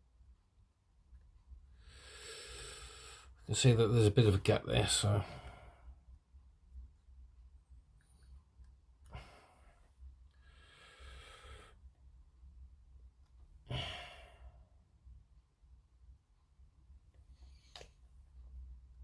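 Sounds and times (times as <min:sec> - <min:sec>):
man sighing: 0:13.7 - 0:14.6.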